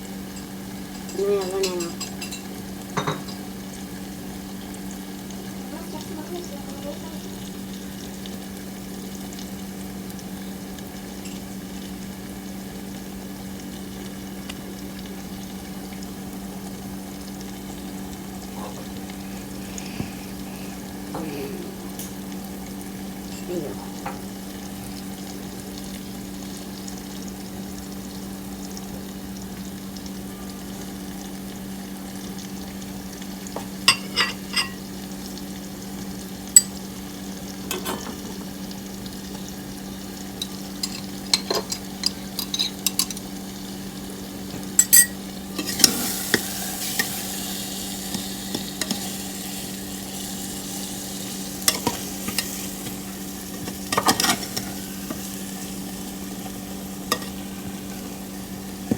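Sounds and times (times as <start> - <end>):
food frying in a pan: 0.0 - 58.9
steady hum: 17.9 - 24.4
spoon scraping a pan: 33.6 - 34.8, 40.4 - 43.3, 44.8 - 49.2, 51.6 - 55.3, 57.1 - 58.0.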